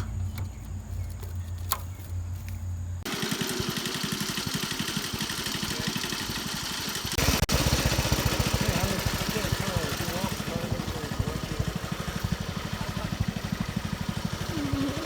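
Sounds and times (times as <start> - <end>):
small engine puttering: 3.0 - 15.0.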